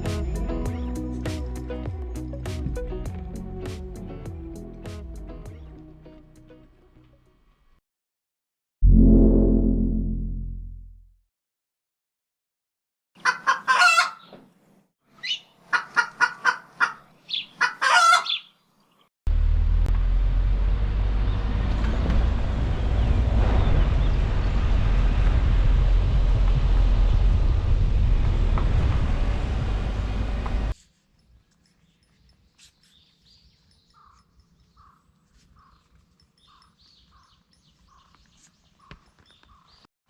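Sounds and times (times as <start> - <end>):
chicken calling: 13.2 - 14.3, 15.2 - 18.5
loud low rumbling noise: 19.3 - 30.8.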